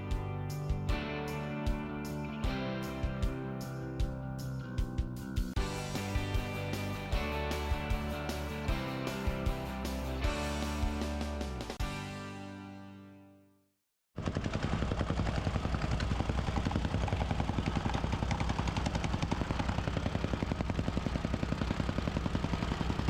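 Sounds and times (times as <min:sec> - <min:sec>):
music: 0:00.0 - 0:13.8
construction machine pounding: 0:14.2 - 0:23.0.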